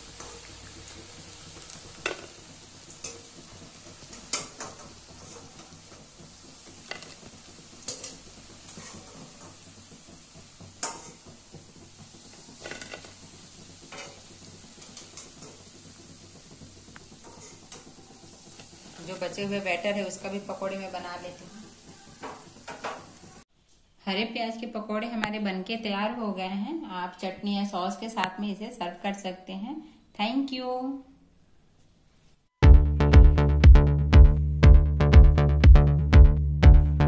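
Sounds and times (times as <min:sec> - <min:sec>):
food frying in hot oil: 0:00.0 - 0:23.4.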